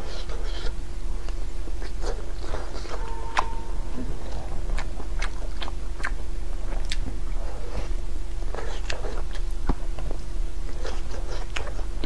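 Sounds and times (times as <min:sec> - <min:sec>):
biting and chewing: 0:05.2 - 0:12.0.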